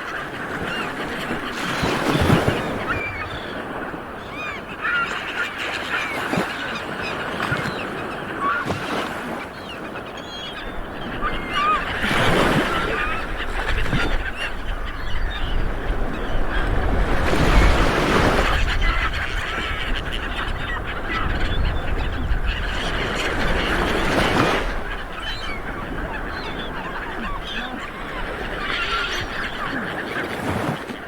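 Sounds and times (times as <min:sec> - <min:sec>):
birds calling: 0:00.0 - 0:31.0
waves washing onto beach: 0:00.0 - 0:31.0.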